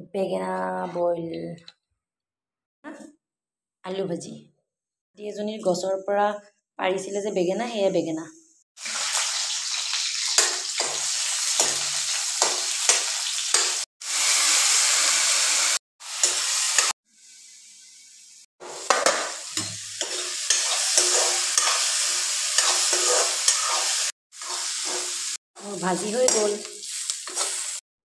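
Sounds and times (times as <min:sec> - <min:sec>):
potatoes sizzling in hot oil: 0:08.8 - 0:27.8
metal spoon scraping pan: 0:18.8 - 0:25.2, 0:26.0 - 0:27.8.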